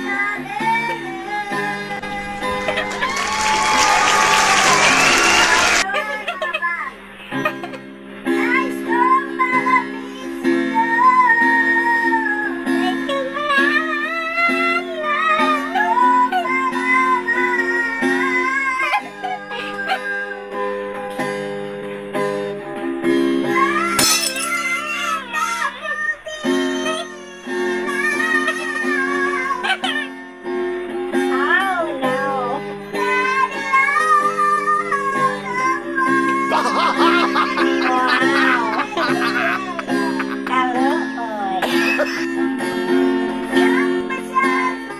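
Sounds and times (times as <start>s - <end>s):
acoustic guitar strumming chords: 19.1s - 44.9s.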